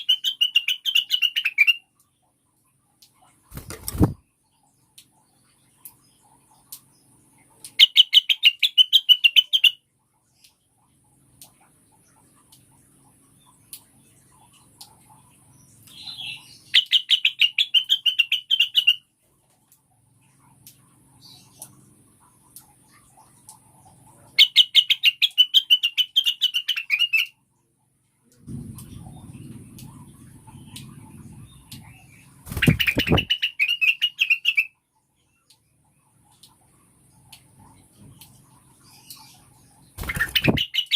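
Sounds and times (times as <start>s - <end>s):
bird calling with fast chirps: 0.0s - 2.0s, 6.0s - 9.9s, 15.9s - 19.1s, 22.6s - 27.4s, 29.9s - 37.3s, 38.4s - 40.9s
low rumbling background: 27.5s - 33.3s
bird chattering call: 32.5s - 34.7s, 40.0s - 40.9s.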